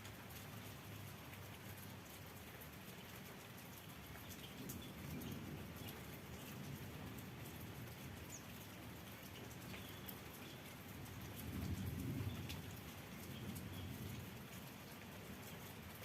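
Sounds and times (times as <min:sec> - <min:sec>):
light rain pattering: 0:00.0 - 0:16.0
raindrops ticking: 0:00.0 - 0:16.0.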